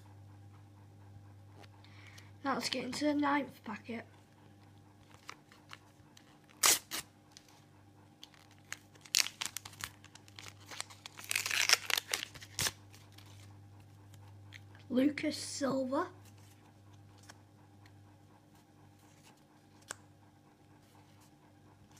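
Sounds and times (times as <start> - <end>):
stickers being handled: 5.0 - 7.6, 8.2 - 13.5, 16.2 - 17.4
foil wrapper tearing and crinkling: 6.4 - 7.5, 8.2 - 13.5.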